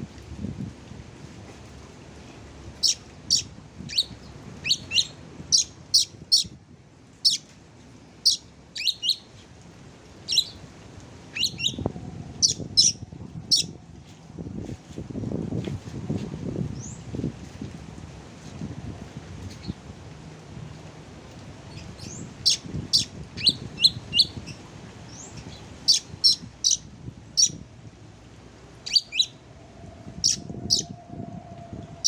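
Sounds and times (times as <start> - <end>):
songbird chirping: 8.3 - 9.3.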